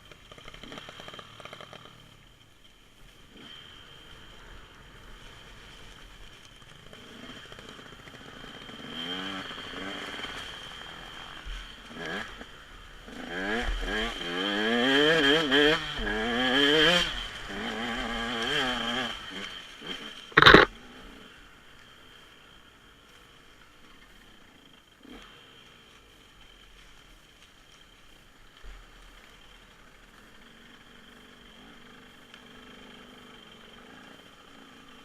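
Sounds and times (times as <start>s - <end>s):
dirt bike engine revving: 6.9s - 21.3s.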